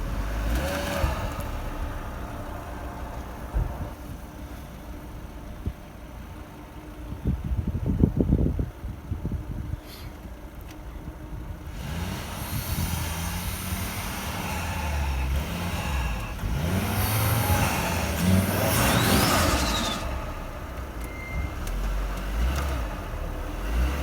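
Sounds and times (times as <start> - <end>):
car engine revving: 0.0 - 5.4, 11.6 - 24.0.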